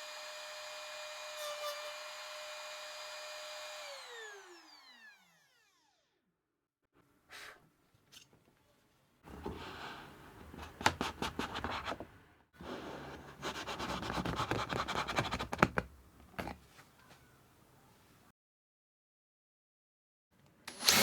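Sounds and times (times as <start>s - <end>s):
scratching and scraping on wood: 9.3s - 16.9s.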